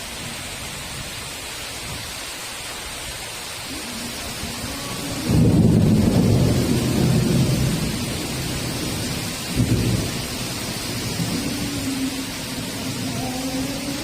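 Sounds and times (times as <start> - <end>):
heavy rain hissing: 0.0 - 14.0
thunder rumbling: 3.7 - 14.0.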